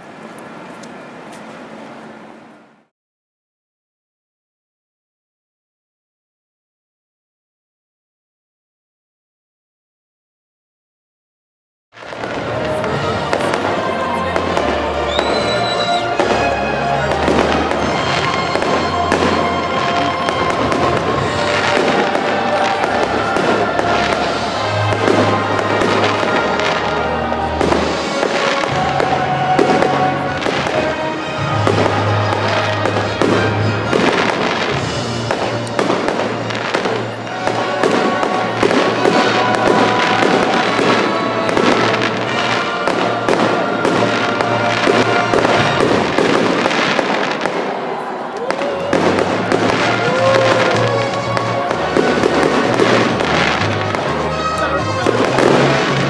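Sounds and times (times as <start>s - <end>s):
fireworks bangs and crackles: 12.0s - 56.0s
music playing: 12.0s - 56.0s.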